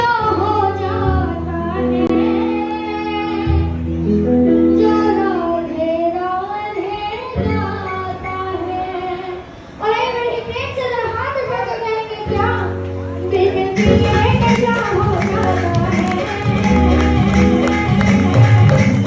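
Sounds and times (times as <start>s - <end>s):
long held accompaniment notes: 12.6s - 19.0s
person singing devotional song: 13.6s - 19.0s.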